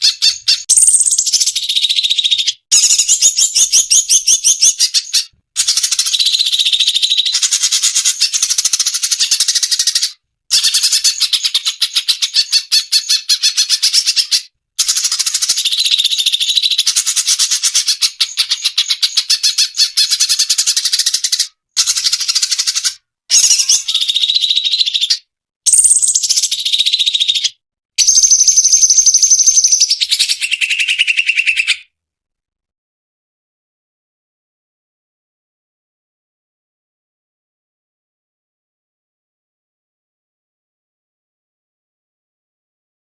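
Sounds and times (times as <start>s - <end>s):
songbird chattering and trilling: 0.0s - 31.9s.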